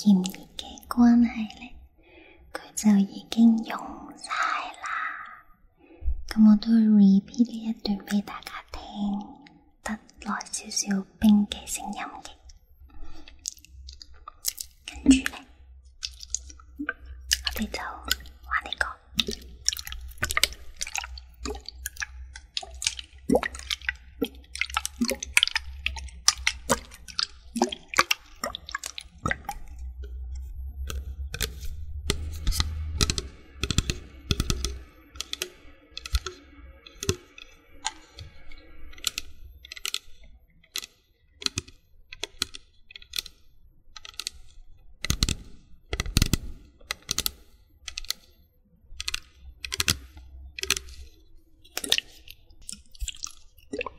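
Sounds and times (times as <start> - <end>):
small wet plops: 15.9 - 18.5, 19.1 - 38.4, 50.6 - 53.9
crisp clicks and taps: 16.0 - 43.4
low rumble: 29.1 - 36.9.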